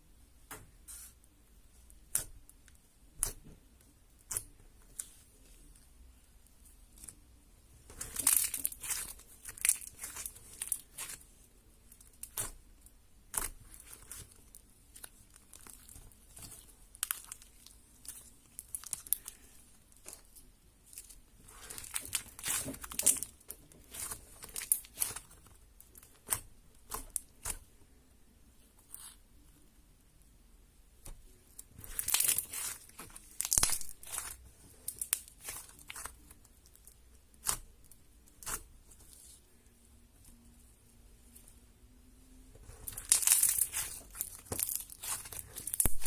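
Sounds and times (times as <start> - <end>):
slime sticky pops and crackles: 31.8 - 38.6.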